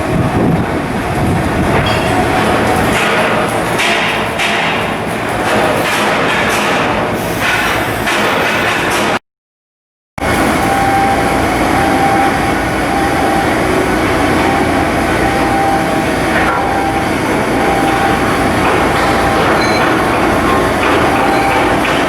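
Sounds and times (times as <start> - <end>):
industrial machinery noise: 0.0 - 9.2, 10.2 - 22.0.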